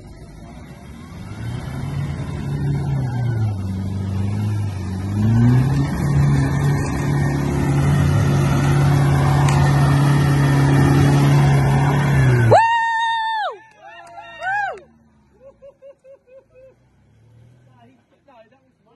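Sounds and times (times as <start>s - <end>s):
car engine working hard: 0.0s - 13.5s.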